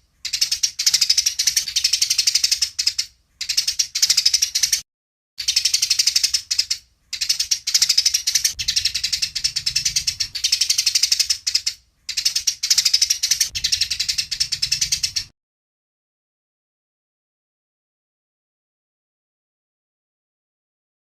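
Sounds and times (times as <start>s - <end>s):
sparrow chattering: 0.0s - 4.8s, 5.4s - 15.3s.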